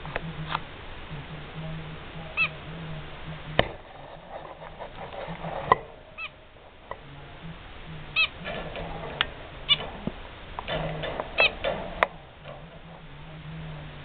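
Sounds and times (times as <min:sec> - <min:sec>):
steady low hum: 0:00.0 - 0:14.0
finch giving short calls: 0:02.4 - 0:02.6.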